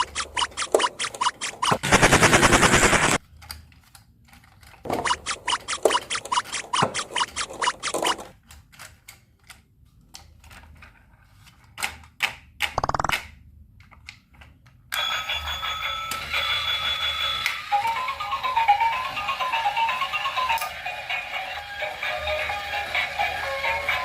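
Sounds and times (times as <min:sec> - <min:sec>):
electronic tune: 0:00.0 - 0:03.2, 0:04.9 - 0:08.3
plastic toy parts clicking: 0:11.5 - 0:14.5.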